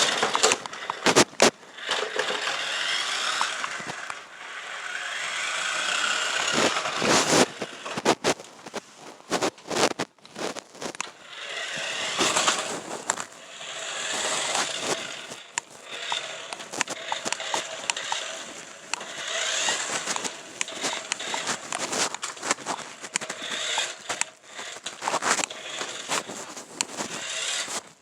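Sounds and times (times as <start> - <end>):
toy truck crunching over ground: 0.0 - 28.0
sharp clicks: 14.6 - 19.1.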